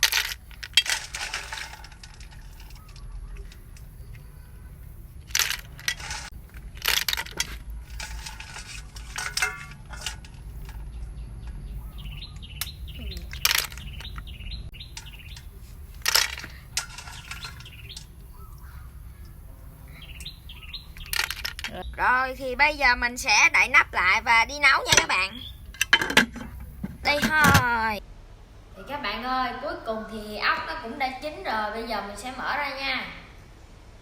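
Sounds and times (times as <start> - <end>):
shells clinking against metal pot: 0.0 - 3.0, 5.3 - 10.8, 12.6 - 18.3
small birds chirping: 0.0 - 28.0.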